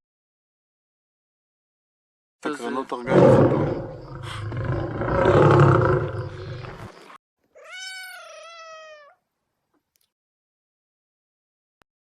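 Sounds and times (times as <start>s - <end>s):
big cat roaring: 3.0s - 6.9s
cat meowing: 7.5s - 9.2s.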